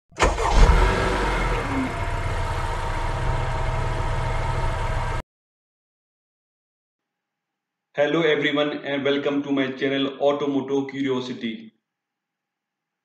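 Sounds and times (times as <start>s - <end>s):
car engine starting and idling: 0.1s - 5.2s.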